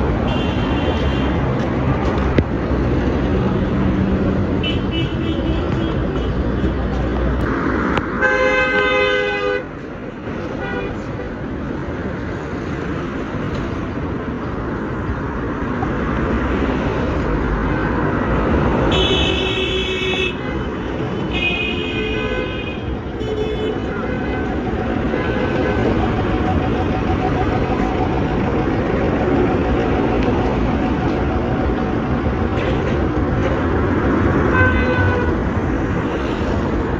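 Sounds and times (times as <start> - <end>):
road traffic noise: 0.0 - 36.9
vehicle horns honking: 0.2 - 1.4, 8.2 - 9.7, 18.9 - 31.1, 32.4 - 35.5.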